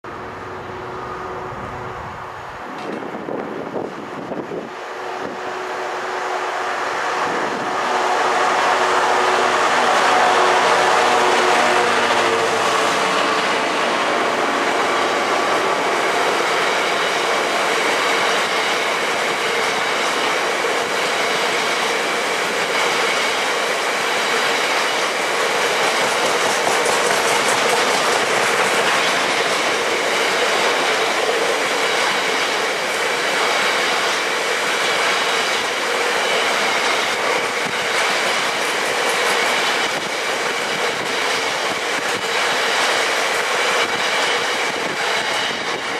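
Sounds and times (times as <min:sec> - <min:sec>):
diesel locomotive engine: 0:00.0 - 0:45.9
wagon wheels over rail joints: 0:24.7 - 0:32.6.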